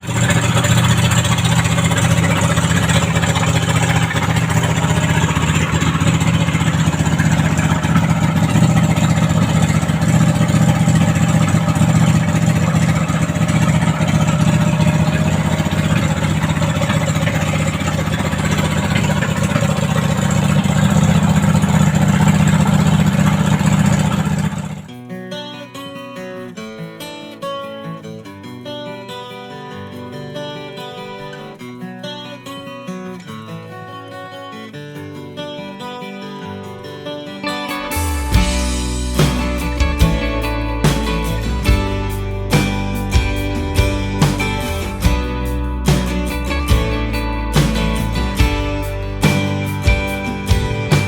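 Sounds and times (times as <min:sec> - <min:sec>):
engine running steadily: 0:00.0 - 0:24.9, 0:37.9 - 0:51.0.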